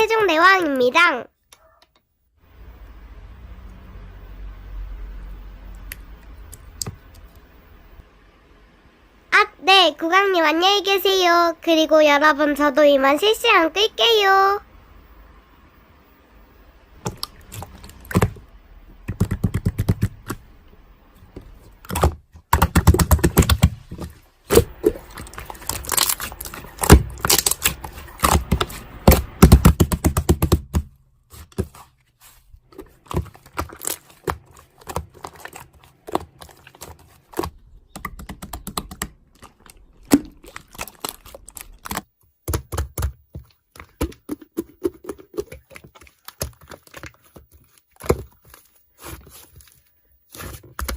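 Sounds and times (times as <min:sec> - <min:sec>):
rapid clicking and tapping: 0:19.0 - 0:20.5, 0:21.9 - 0:24.1, 0:24.7 - 0:30.9, 0:32.8 - 0:40.5, 0:41.7 - 0:47.1.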